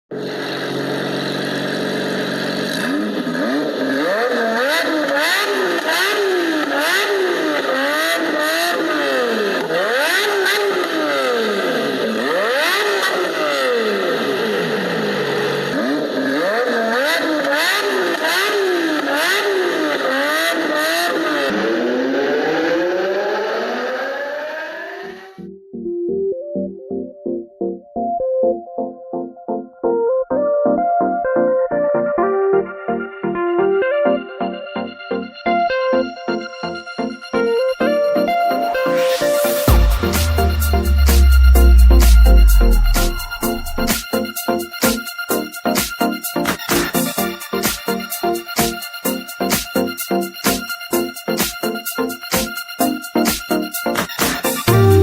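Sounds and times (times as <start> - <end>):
car engine idling and revving: 0.1 - 25.3, 39.6 - 44.0, 54.7 - 55.0.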